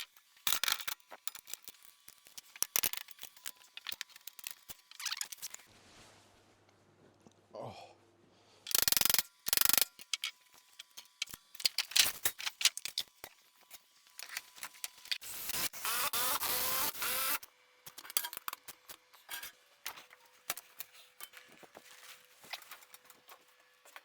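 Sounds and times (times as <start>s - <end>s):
objects clicking and clattering: 0.0s - 5.7s, 8.7s - 15.2s.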